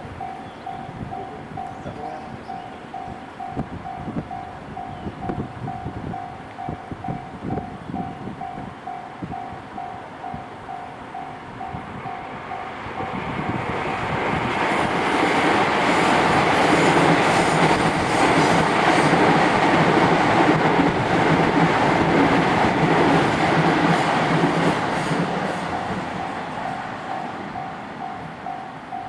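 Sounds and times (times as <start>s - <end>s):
train rumbling over crossing: 0.0s - 29.0s
electronic crossing warning bell: 0.1s - 13.5s, 25.7s - 29.0s.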